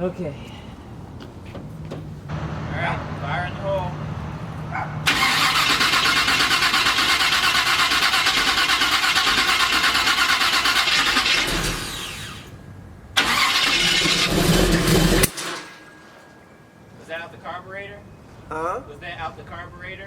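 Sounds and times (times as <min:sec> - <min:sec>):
engine starter cranking: 0:05.1 - 0:12.6, 0:13.2 - 0:15.8.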